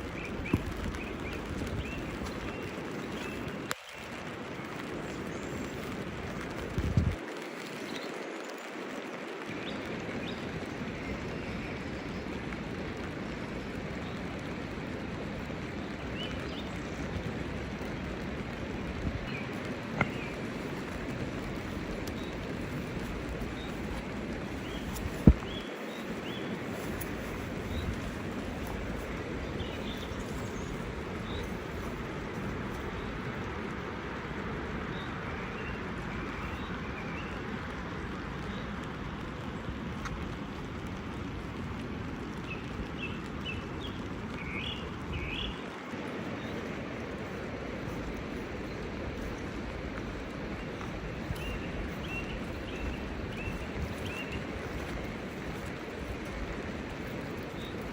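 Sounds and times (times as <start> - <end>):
steady rain falling: 0.0 - 57.9
sharp drips: 12.3 - 57.9.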